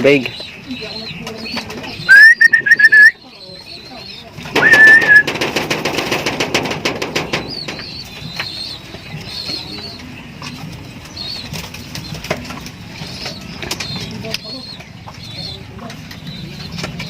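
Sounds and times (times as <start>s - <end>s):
faint high chirps: 2.1s - 3.5s
pigeon wings flapping: 4.5s - 7.8s.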